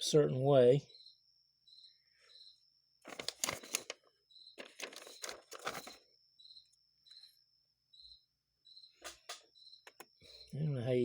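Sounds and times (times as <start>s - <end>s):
crickets chirping: 0.0s - 11.0s
crinkly rustling of packaging: 3.1s - 6.0s.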